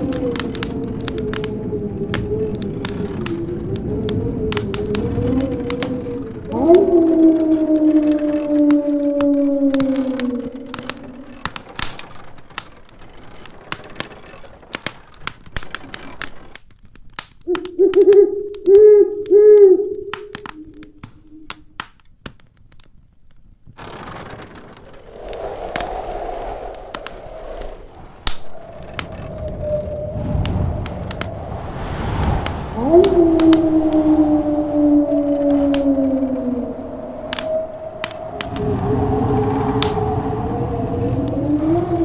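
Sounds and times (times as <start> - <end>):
wind howling: 0.0 - 14.3, 23.8 - 42.0
wood fire crackling and popping: 0.0 - 42.0.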